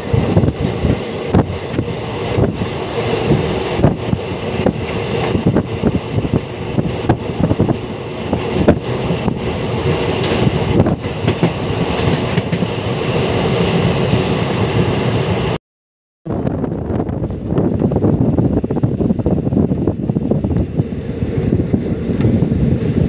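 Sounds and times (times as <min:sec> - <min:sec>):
train wheels rattling on track: 0:00.0 - 0:15.4
train running noise: 0:00.0 - 0:15.6, 0:16.3 - 0:23.0.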